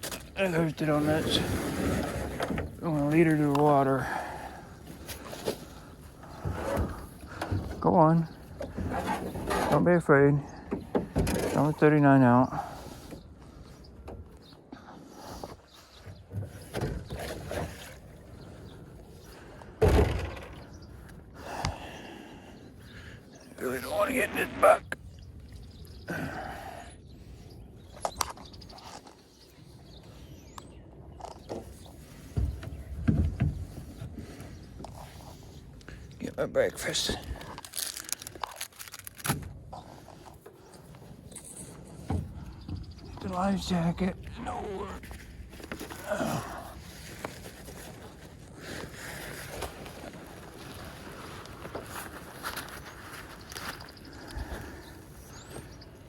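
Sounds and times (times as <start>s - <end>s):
kayak scraping and rustling: 0.0s - 10.0s, 12.6s - 19.5s, 27.2s - 56.0s
kayak loud thump: 19.8s - 20.8s
gear rustling and scraping: 36.8s - 42.0s.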